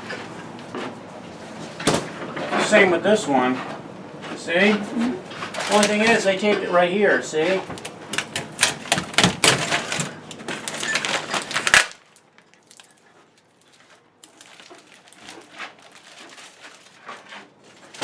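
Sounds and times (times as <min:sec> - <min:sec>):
packing tape peeling crackle: 0:05.5 - 0:06.2, 0:07.8 - 0:17.3.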